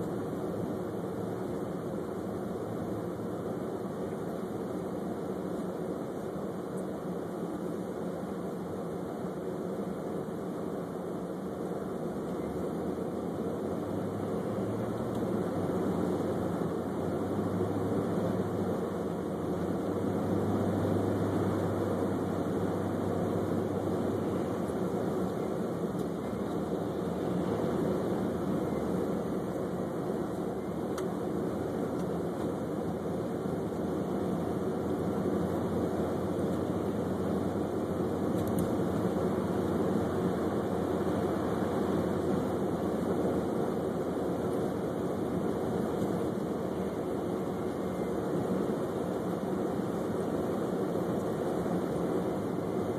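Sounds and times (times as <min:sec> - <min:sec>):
car engine hum inside cabin: 0:00.0 - 0:52.9
tyre and road noise: 0:12.2 - 0:52.9.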